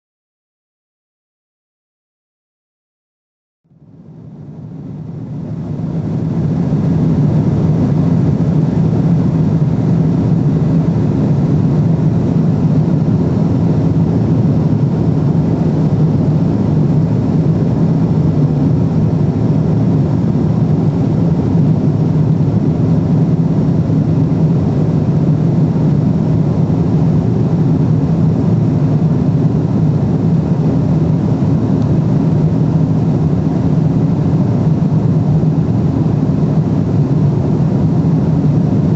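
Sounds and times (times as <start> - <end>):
airplane cabin engine drone: 3.7 - 38.9.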